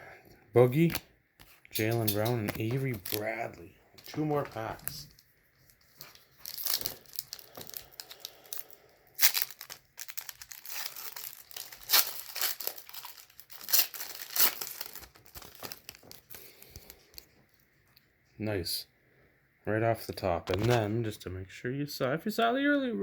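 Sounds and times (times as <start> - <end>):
wrapper tearing and crinkling: 2.5 - 17.3.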